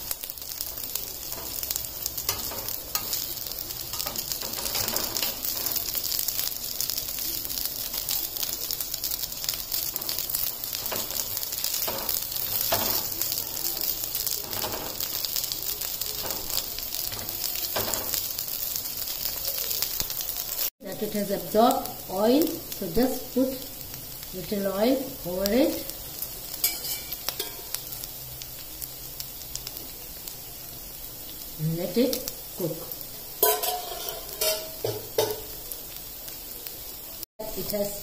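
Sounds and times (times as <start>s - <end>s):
food sizzling in oil: 0.0s - 38.0s
spatula scraping a pan: 0.5s - 6.9s, 8.7s - 18.3s, 26.6s - 27.8s, 33.4s - 35.6s.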